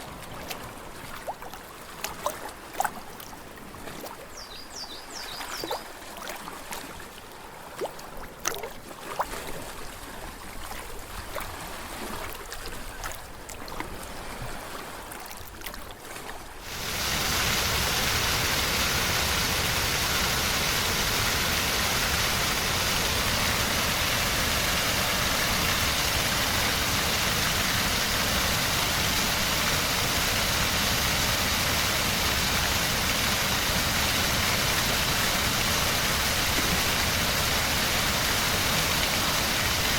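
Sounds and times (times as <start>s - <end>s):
water lapping at shore: 0.0s - 39.9s
rush of falling water: 16.6s - 39.9s.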